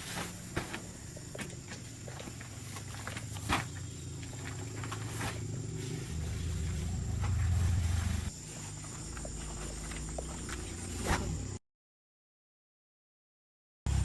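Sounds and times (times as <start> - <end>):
engine running: 1.7 - 11.0.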